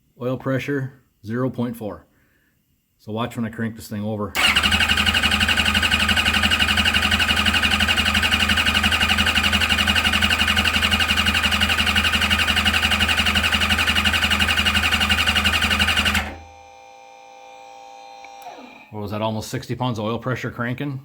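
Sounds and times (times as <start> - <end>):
starter motor cranking engine: 4.4 - 16.4.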